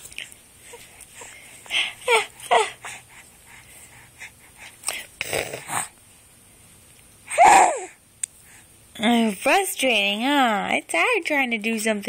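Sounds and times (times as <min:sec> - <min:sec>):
baby huffing: 0:07.3 - 0:08.0.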